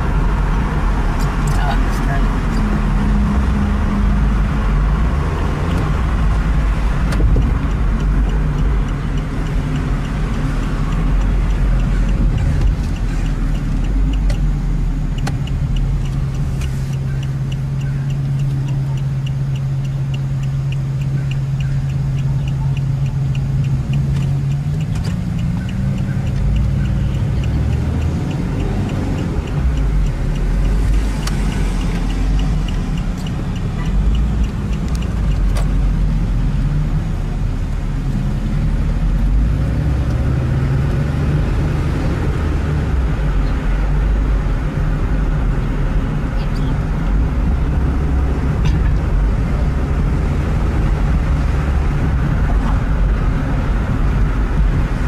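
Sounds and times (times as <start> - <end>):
car engine drone in cabin: 0.0 - 55.0
road noise: 0.0 - 55.0
fast regular ticking: 4.2 - 55.0.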